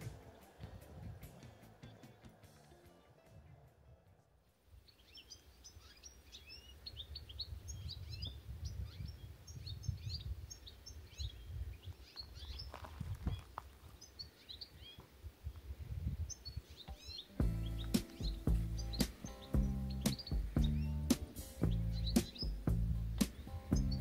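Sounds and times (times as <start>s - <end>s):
small birds chirping: 0.0s - 24.0s
low steady rumble: 19.6s - 24.0s.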